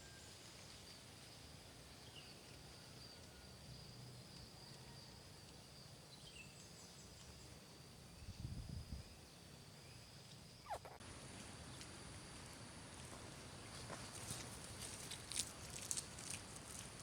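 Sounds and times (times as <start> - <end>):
faint bird chirps: 8.1 - 11.0.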